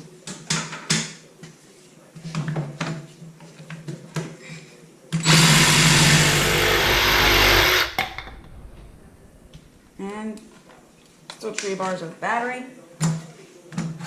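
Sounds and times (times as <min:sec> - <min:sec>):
jigsaw cutting wood: 0:05.2 - 0:08.3.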